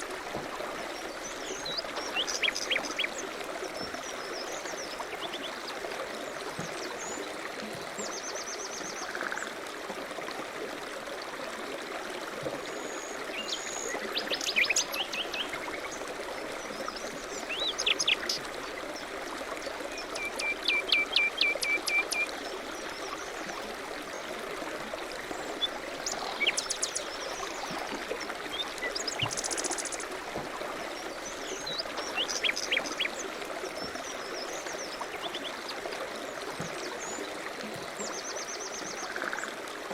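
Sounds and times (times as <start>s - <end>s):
running water: 0.0s - 39.9s
songbirds chirping and trilling: 0.9s - 3.2s, 30.8s - 35.8s.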